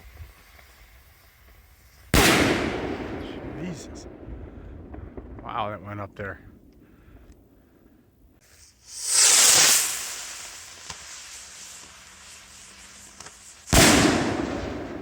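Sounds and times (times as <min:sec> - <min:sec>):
firework rocket hissing rush: 0:00.0 - 0:03.9, 0:08.4 - 0:15.0
firework bang: 0:02.1 - 0:05.5, 0:08.5 - 0:15.0.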